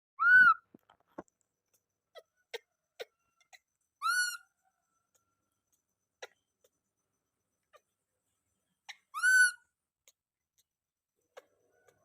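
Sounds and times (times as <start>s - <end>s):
baby monkey squealing: 0.2s - 0.6s, 2.2s - 4.5s, 8.9s - 9.8s.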